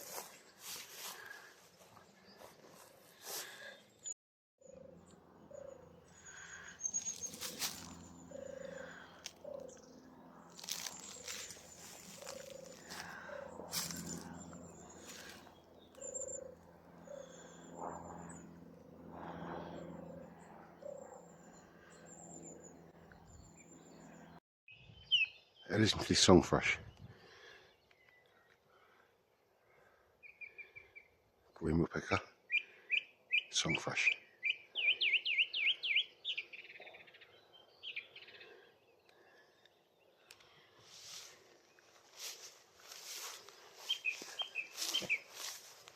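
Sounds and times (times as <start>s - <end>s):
high trilled birdsong: 4.6s - 19.2s, 19.8s - 25.7s, 43.0s - 45.7s.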